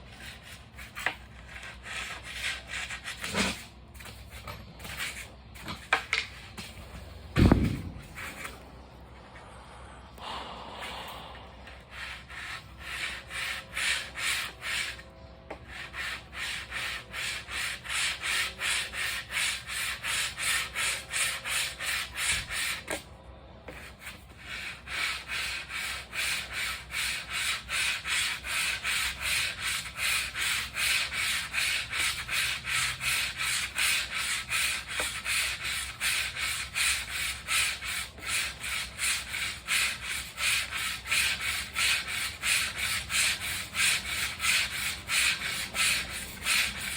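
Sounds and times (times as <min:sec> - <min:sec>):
sandpaper rubbing back and forth: 0:11.7 - 0:23.0, 0:23.8 - 0:46.9.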